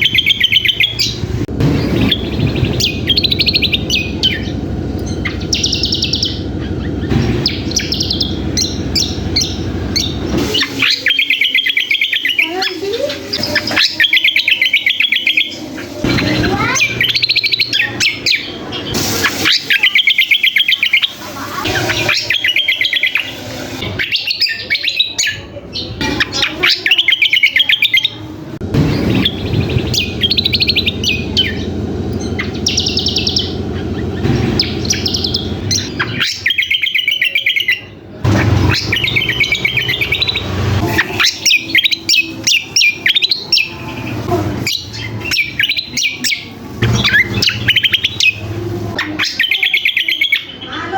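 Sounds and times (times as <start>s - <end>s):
low buzzing: 0.0s - 10.9s, 28.4s - 36.5s
songbird singing rattling trills: 0.0s - 28.2s, 28.9s - 50.9s.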